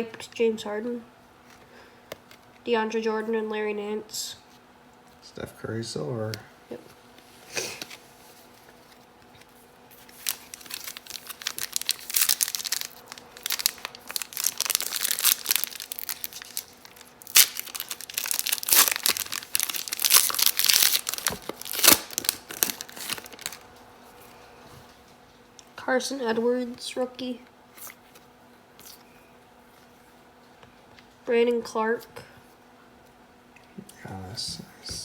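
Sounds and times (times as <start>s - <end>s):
wrapper crinkling and tearing: 9.9s - 23.7s.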